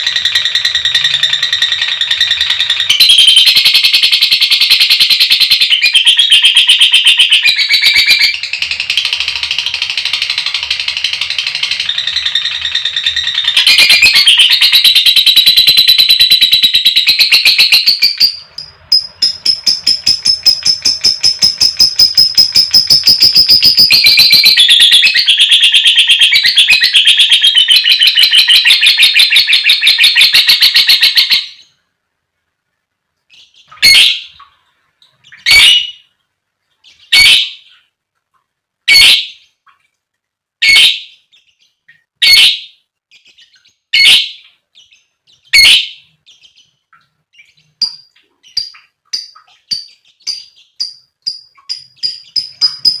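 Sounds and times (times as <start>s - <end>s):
loud shrill bird calls: 0.0s - 31.7s, 33.6s - 34.4s, 37.0s - 37.8s, 38.9s - 39.5s, 42.2s - 42.8s, 43.4s - 44.5s, 45.3s - 46.2s
lovebird chattering trill: 0.0s - 31.7s, 47.4s - 53.0s.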